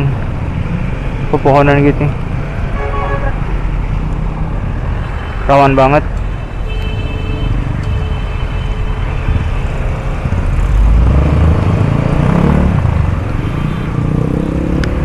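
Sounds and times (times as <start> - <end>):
engine rumble: 0.0 - 15.0
vehicle engines running: 0.0 - 15.0
traffic hiss: 13.1 - 14.2.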